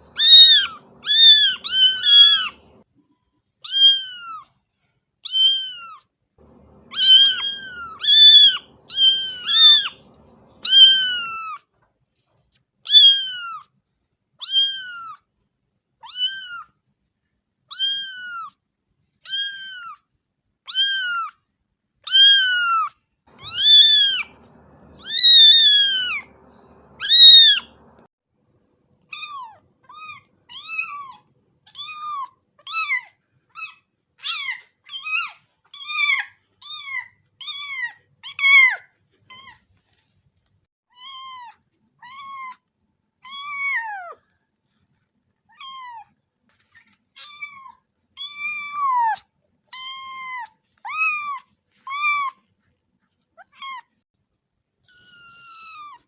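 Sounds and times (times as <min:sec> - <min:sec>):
cat meowing: 0:00.0 - 0:02.8, 0:03.6 - 0:04.5, 0:05.2 - 0:11.6, 0:12.9 - 0:13.7, 0:14.4 - 0:15.2, 0:16.0 - 0:16.7, 0:17.7 - 0:18.5, 0:19.3 - 0:20.0, 0:20.7 - 0:21.4, 0:22.1 - 0:28.1, 0:29.1 - 0:38.8, 0:43.2 - 0:44.2, 0:45.5 - 0:46.1, 0:47.2 - 0:52.4, 0:54.9 - 0:56.0.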